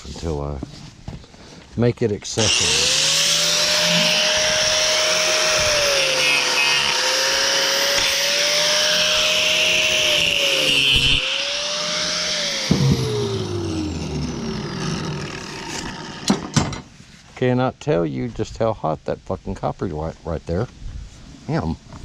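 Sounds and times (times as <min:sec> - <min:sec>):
power tool blade cutting copper: 0:02.4 - 0:16.8.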